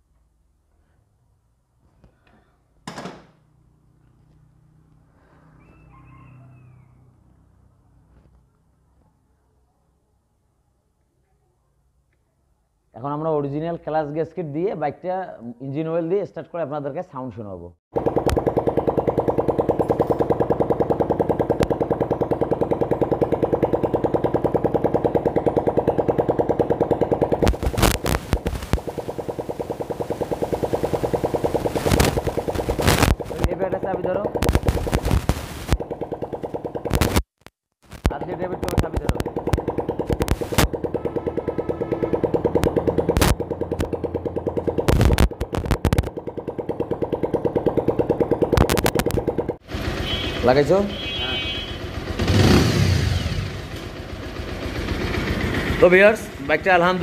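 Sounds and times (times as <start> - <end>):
motorcycle engine idling: 18.0 - 37.1, 38.1 - 57.0
sharp clicks: 34.4 - 35.8, 36.9 - 40.8, 44.8 - 46.2, 48.5 - 49.3.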